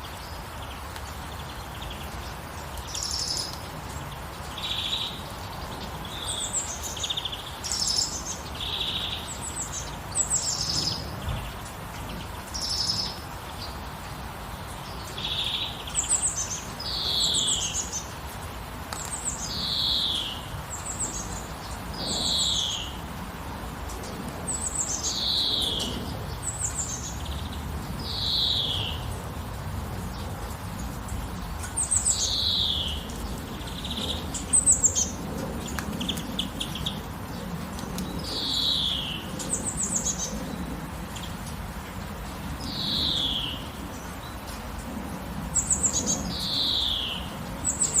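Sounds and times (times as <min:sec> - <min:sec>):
steady background hiss: 0:00.0 - 0:48.0
songbird calling: 0:14.9 - 0:18.1, 0:19.0 - 0:23.0, 0:24.5 - 0:29.0, 0:31.6 - 0:37.1, 0:38.1 - 0:40.4, 0:42.6 - 0:44.4, 0:45.6 - 0:48.0.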